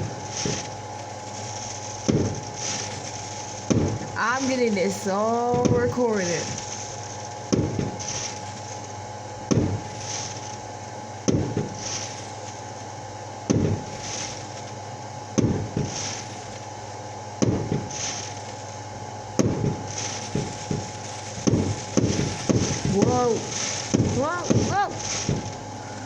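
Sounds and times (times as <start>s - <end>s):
fireworks hissing: 8.0s - 8.8s, 11.8s - 12.4s, 15.8s - 16.6s, 17.9s - 18.6s, 19.8s - 26.0s
fireworks banging: 19.4s - 25.9s.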